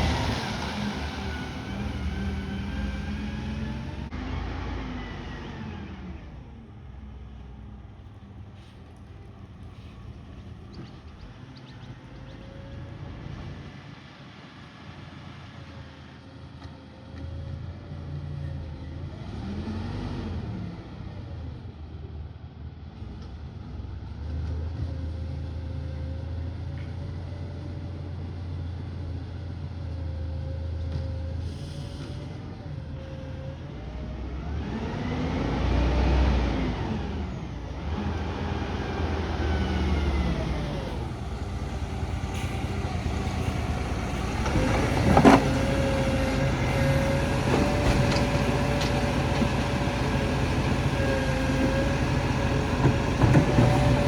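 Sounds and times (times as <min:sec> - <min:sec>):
truck engine running: 0:00.0 - 0:19.0, 0:29.9 - 0:54.0
street traffic: 0:00.0 - 0:54.0
vehicles passing by: 0:00.0 - 0:54.0.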